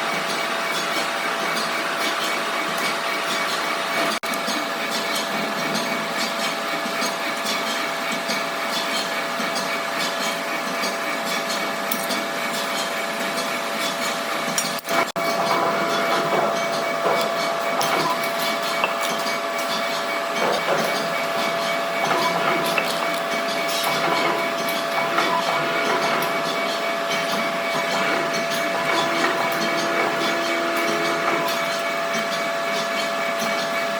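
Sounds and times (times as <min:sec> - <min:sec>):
heavy machinery whining and rattling: 0:14.7 - 0:33.9.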